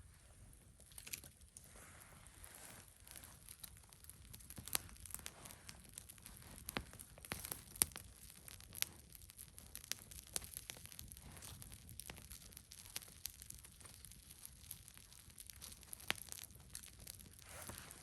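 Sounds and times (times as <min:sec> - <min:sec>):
campfire crackling and popping: 0:00.8 - 0:01.7, 0:02.8 - 0:18.0.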